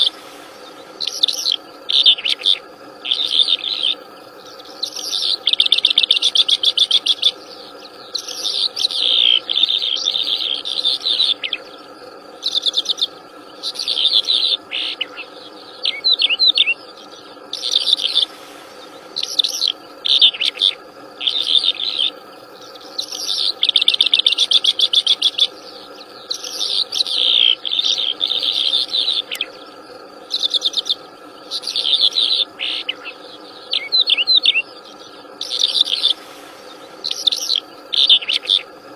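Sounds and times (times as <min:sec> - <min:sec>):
songbird chirping: 0:00.0 - 0:38.9
steady background drone: 0:00.0 - 0:38.9.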